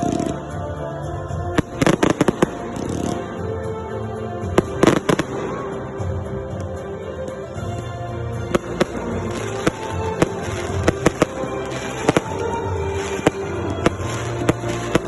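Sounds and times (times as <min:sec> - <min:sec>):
music: 0:00.0 - 0:15.0
fireworks bangs: 0:08.5 - 0:15.0.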